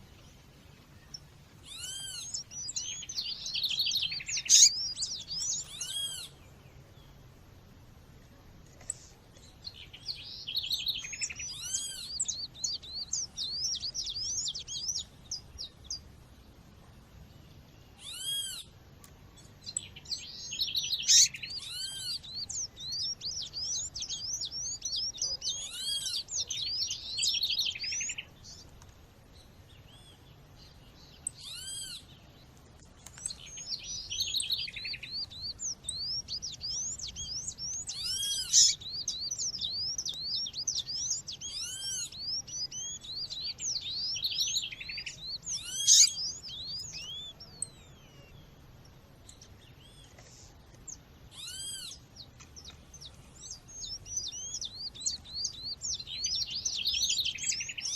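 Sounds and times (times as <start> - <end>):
other birds: 0.0 - 57.9
rapid high bird chirps: 1.1 - 6.4, 19.6 - 28.6, 33.3 - 48.3, 51.3 - 57.9.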